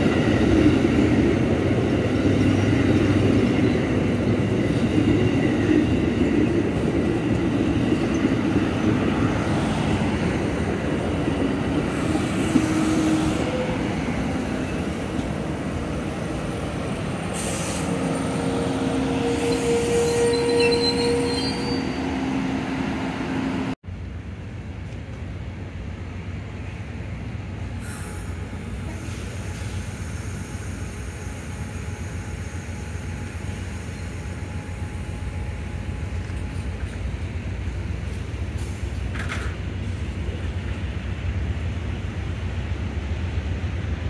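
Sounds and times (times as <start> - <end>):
train rolling on rails: 0.0 - 44.0
steel wheels squealing: 17.4 - 22.2.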